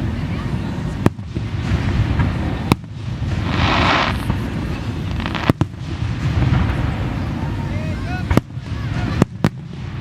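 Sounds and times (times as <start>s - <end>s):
hissing crackle: 0.0s - 10.0s
low rumble: 0.0s - 10.0s
firework bang: 1.0s - 7.6s, 8.2s - 10.0s.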